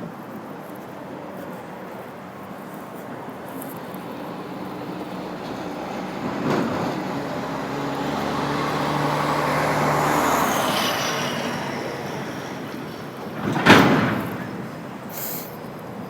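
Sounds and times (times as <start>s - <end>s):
vehicle driving past: 4.0s - 13.2s.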